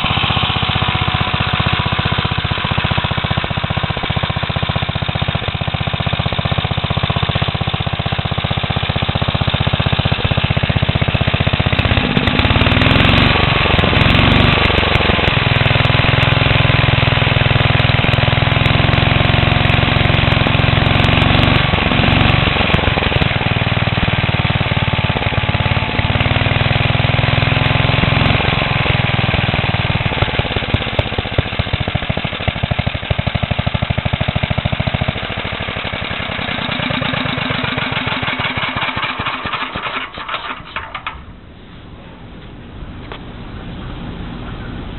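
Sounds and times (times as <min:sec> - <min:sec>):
engine revving: 0:00.0 - 0:41.2.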